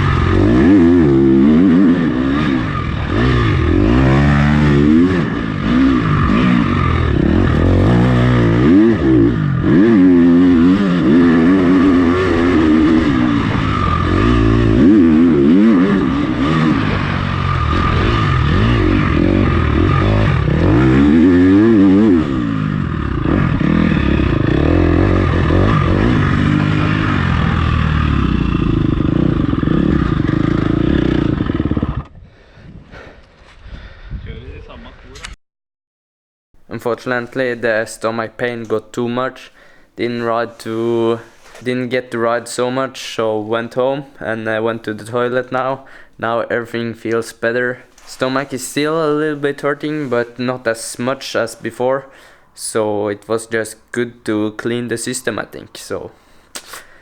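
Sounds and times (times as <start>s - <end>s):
motocross bike engine revving: 0.0s - 32.2s, 39.6s - 41.6s, 47.6s - 52.4s.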